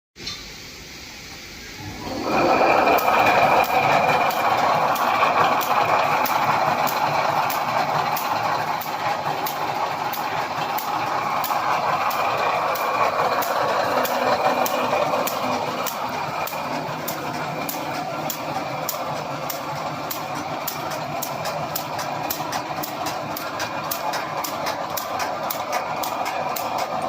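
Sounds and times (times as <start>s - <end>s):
wire mesh machine running: 1.8s - 27.0s
fast even ticking: 2.9s - 27.0s.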